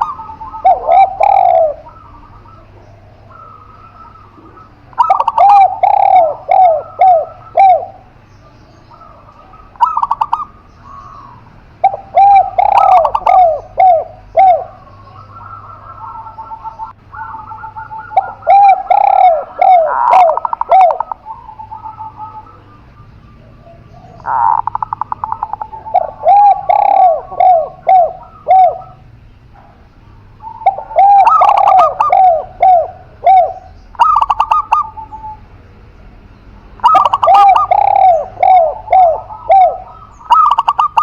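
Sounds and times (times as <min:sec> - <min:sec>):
doves cooing: 0:00.0 - 0:35.6, 0:36.2 - 0:41.0.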